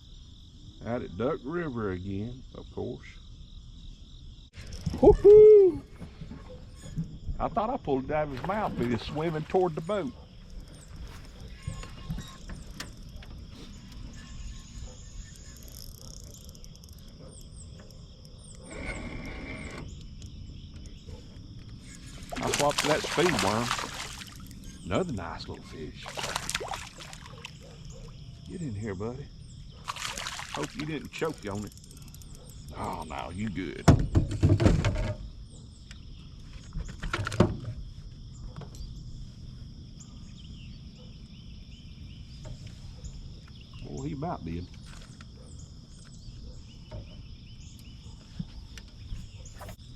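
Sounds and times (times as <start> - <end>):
insects trilling: 0.0 - 49.9
rough buzzing: 18.5 - 20.2.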